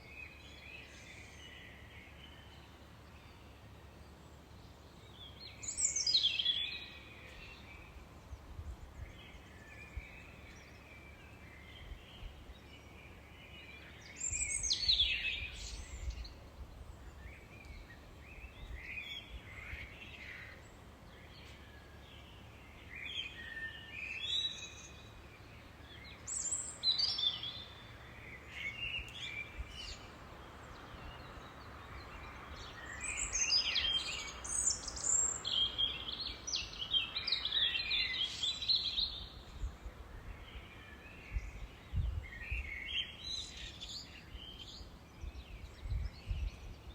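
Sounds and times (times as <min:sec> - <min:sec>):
songbirds singing: 0:00.0 - 0:46.9.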